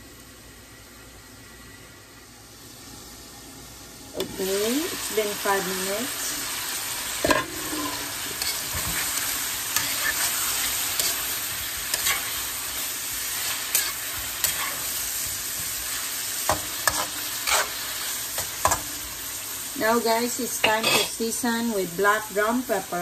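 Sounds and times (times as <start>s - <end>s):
chicken sizzling in oil: 2.5s - 23.0s
metal spoon scraping wok: 7.2s - 12.6s, 13.4s - 15.0s, 16.5s - 18.8s, 20.6s - 21.2s.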